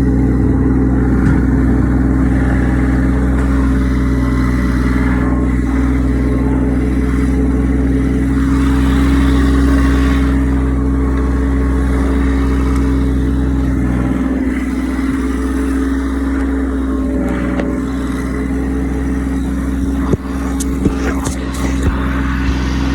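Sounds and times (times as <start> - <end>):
tractor engine running under load: 0.0 - 22.9.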